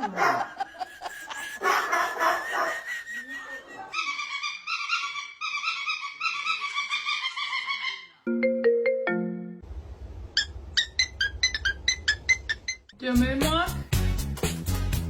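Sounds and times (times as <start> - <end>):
warbling ringtone melody: 8.3 - 9.6.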